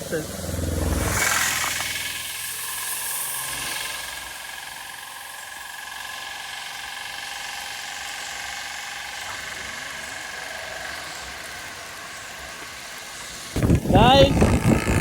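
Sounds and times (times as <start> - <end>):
motorcycle engine and road noise: 0.0 - 15.0.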